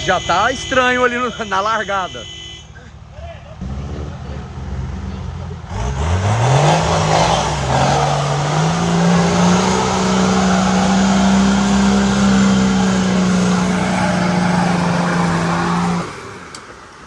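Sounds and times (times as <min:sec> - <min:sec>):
off-road vehicle engine revving: 0:02.9 - 0:16.6
spinning tyres rushing: 0:03.6 - 0:17.0.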